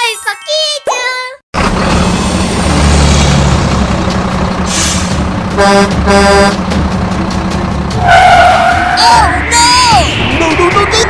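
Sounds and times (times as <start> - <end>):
vehicle engine running: 1.6 - 8.0.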